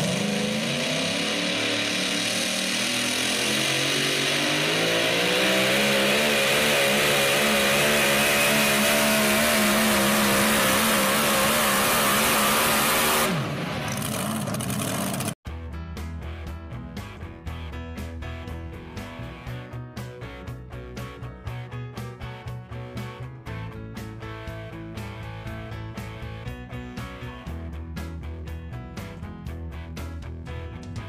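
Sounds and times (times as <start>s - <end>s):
truck engine at full throttle: 0.0s - 15.4s.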